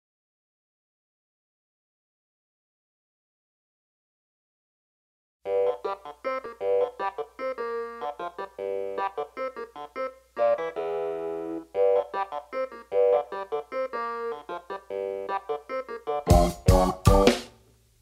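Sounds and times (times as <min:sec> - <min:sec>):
keyboard playing funk chords: 0:05.5 - 0:17.6.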